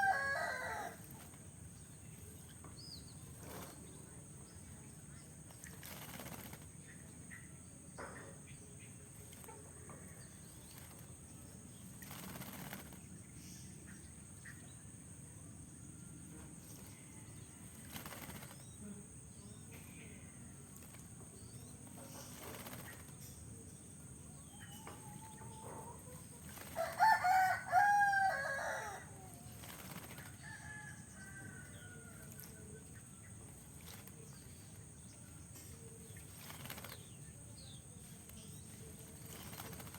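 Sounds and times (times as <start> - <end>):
rooster crowing: 0.0 - 1.0, 26.8 - 29.5
bird wings fluttering: 0.0 - 2.6, 3.3 - 4.0, 5.4 - 7.0, 10.2 - 13.3, 16.5 - 18.8, 20.6 - 23.4, 26.0 - 39.9.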